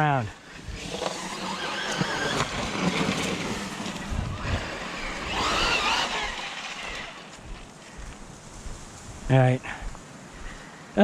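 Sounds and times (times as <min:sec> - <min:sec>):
electric toy car motor whine: 0:00.5 - 0:07.4.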